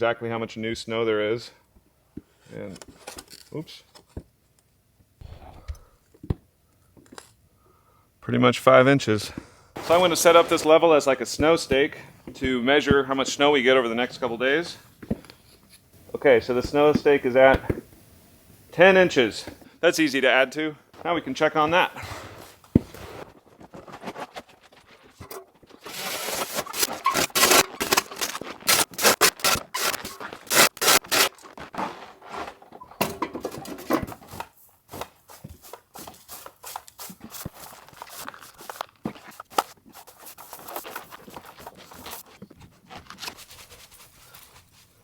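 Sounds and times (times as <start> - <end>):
snow crunching and scraping: 9.8 - 17.7, 21.0 - 32.7.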